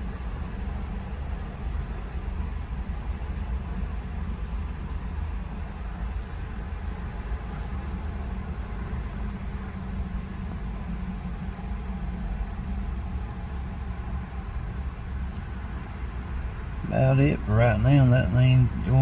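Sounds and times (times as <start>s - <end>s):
faint hiss: 0.0s - 19.0s.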